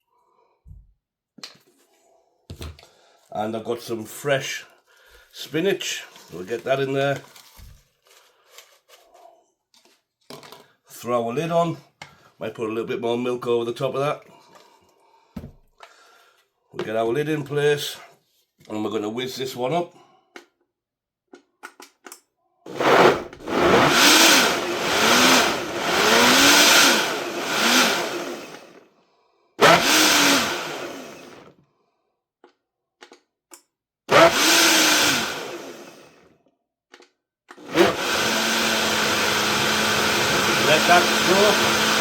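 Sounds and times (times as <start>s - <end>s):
blender motor pulsing: 22.7s - 28.8s, 29.6s - 31.5s, 34.1s - 36.3s, 37.6s - 42.0s.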